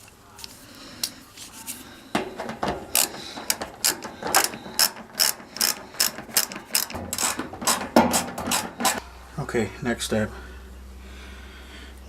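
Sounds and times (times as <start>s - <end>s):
ratchet wrench clicking: 2.5s - 9.0s.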